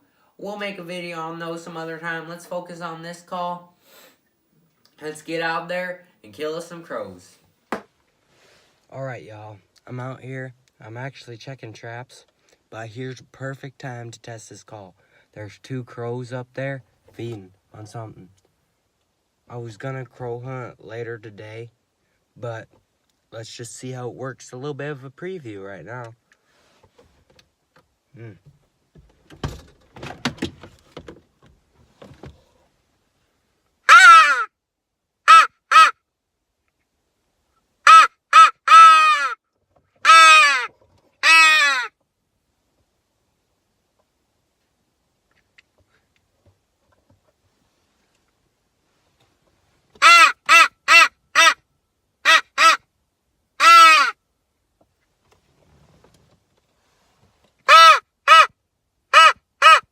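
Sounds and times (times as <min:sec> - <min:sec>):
crow call caws: 0:33.9 - 0:34.5, 0:37.9 - 0:39.4, 0:40.0 - 0:42.0, 0:50.0 - 0:51.6, 0:53.6 - 0:54.2, 0:57.7 - 0:58.5, 0:59.1 - 0:59.8.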